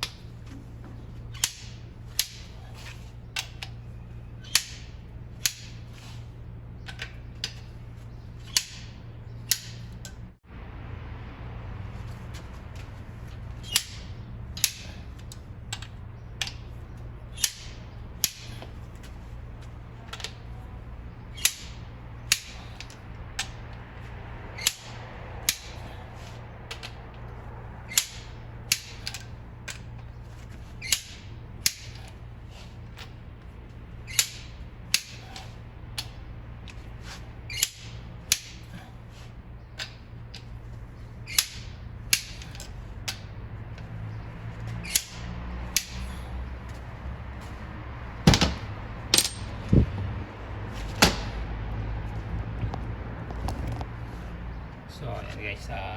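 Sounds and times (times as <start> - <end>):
steady low hum: 0.0 - 55.9
torque wrench clicks: 4.4 - 5.9.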